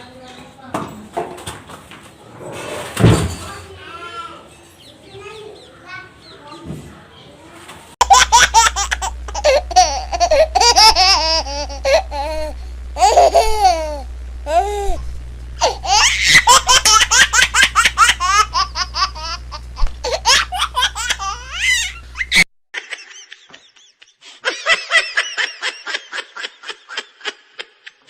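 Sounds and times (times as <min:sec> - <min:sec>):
baby laughing: 0:08.0 - 0:15.0, 0:15.6 - 0:23.8
low steady hum: 0:08.0 - 0:22.4.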